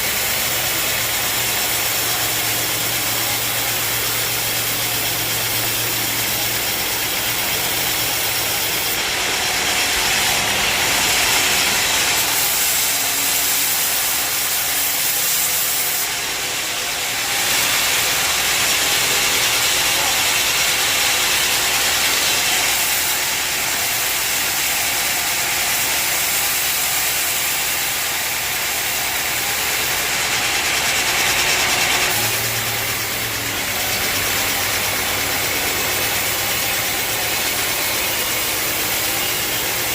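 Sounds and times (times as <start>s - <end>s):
saw blade cutting log: 0.0s - 39.9s.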